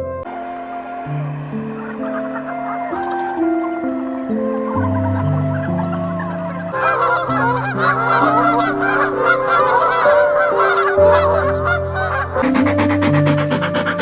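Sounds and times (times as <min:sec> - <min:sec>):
background music: 0:00.0 - 0:14.0
geese honking and cackling: 0:00.3 - 0:14.0.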